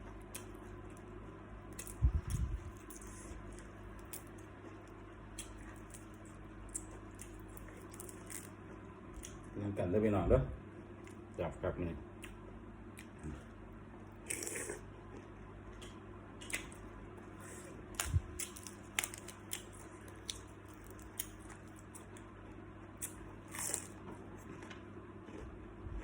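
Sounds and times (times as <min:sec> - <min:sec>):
crunching shrimp shells: 0:01.6 - 0:08.6, 0:17.9 - 0:22.2.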